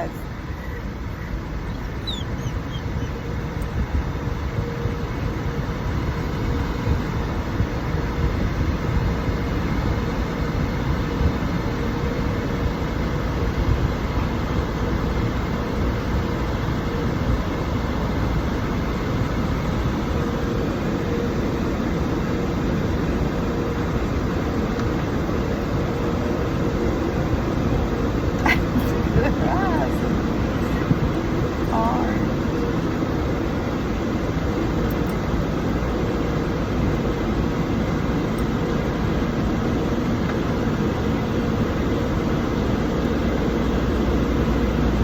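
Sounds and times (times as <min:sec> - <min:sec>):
car wash machinery rumbling: 0:00.0 - 0:45.0
faint steady hum: 0:00.0 - 0:45.0.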